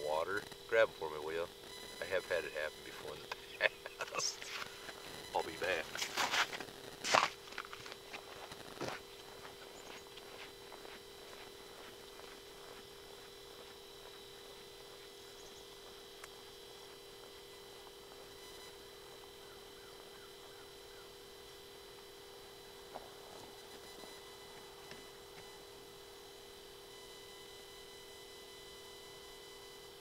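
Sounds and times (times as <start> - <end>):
faint two-tone hum: 0.0 - 30.0
footsteps crunching on snow: 3.7 - 21.2.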